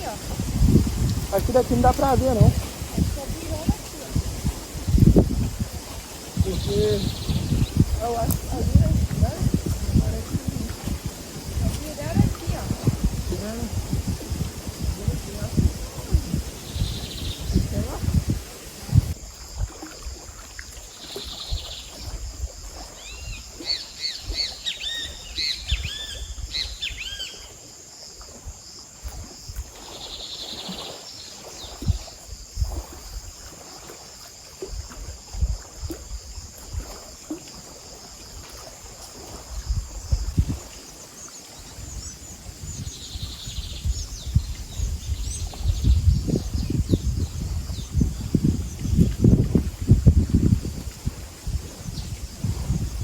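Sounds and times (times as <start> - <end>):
high insect drone: 0.0 - 53.0
low thumps and rustling: 0.2 - 19.2, 43.8 - 53.0
wild birds chirping: 5.8 - 19.2, 23.0 - 27.5, 40.9 - 49.1.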